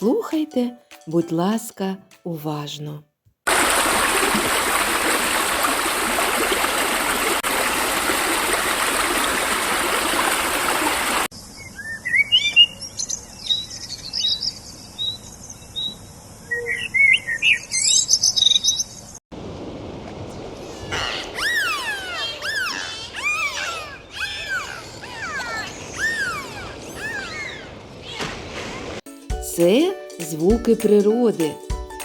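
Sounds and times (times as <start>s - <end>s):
songbirds chirping: 11.3s - 19.2s, 20.4s - 28.4s.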